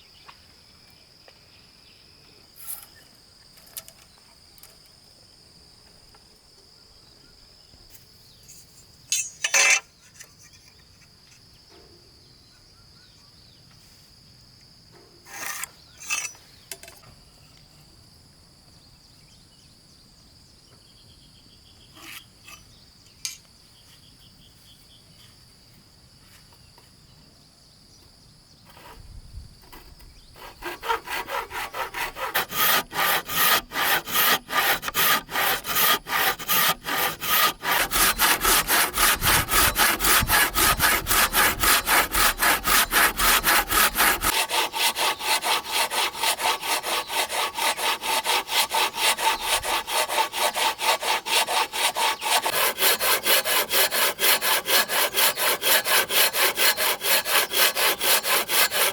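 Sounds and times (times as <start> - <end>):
wood knocks and scrapes: 28.7 - 44.4
handsaw cutting wood: 29.7 - 58.9.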